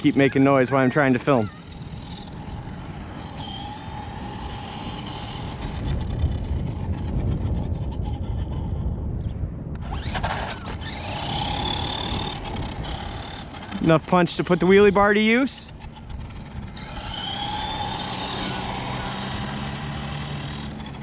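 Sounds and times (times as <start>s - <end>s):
electric motor and gear whine: 0.0s - 9.0s, 9.7s - 21.0s
tyres rumbling on ground: 9.8s - 21.0s.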